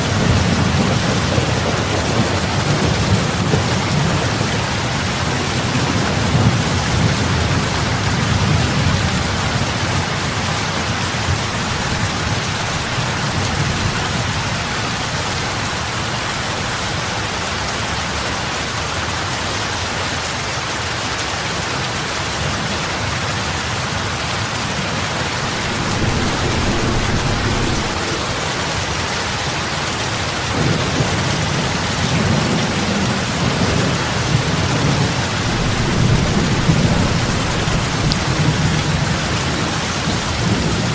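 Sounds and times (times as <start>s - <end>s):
heavy rain splashing on water: 0.0s - 40.9s
low rumble: 25.3s - 29.6s.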